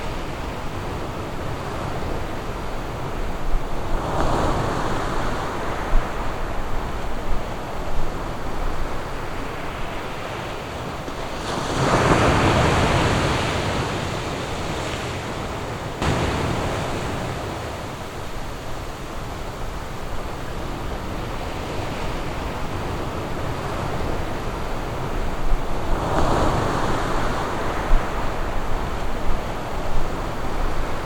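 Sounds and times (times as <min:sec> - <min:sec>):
ocean surf washing on beach: 0:00.0 - 0:31.0
wave breaking: 0:11.2 - 0:18.8.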